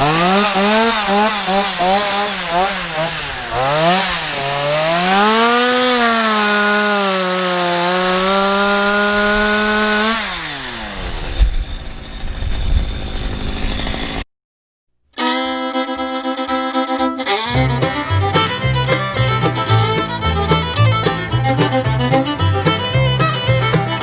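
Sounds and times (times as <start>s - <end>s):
chainsaw revving: 0.0s - 14.2s, 17.6s - 24.0s
low thumps: 17.6s - 24.0s.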